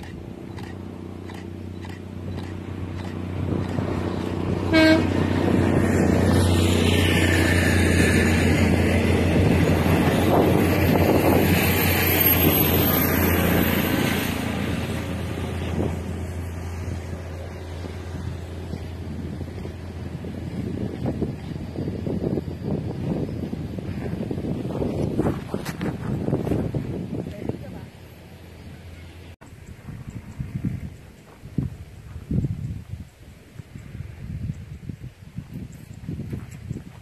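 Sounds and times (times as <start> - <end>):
train running past on rails: 0.0 - 32.6
train horn toot: 4.6 - 5.5.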